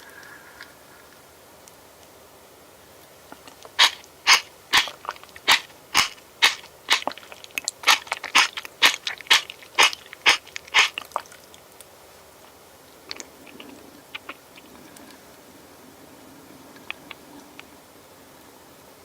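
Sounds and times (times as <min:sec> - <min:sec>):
crunchy bites while eating: 0:03.4 - 0:11.4.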